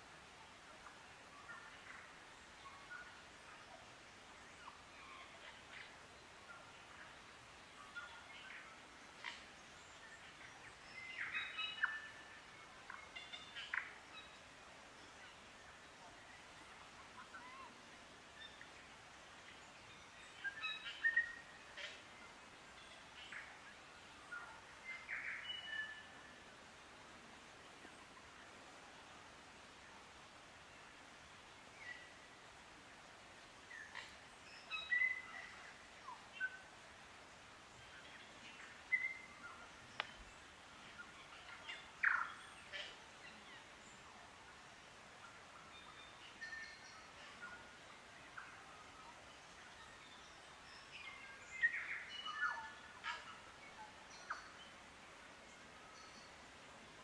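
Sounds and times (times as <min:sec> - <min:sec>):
faint background hiss: 0:00.0 - 0:57.0
forest birds calling: 0:00.5 - 0:57.0.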